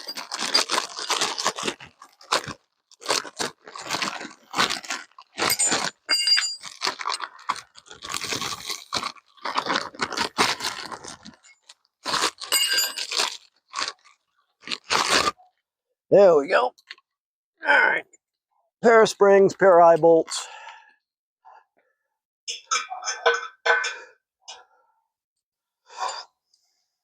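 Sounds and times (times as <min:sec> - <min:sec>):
crunching and rustling packaging: 0:00.0 - 0:15.5
metallic clinks: 0:05.5 - 0:06.7, 0:12.5 - 0:13.1.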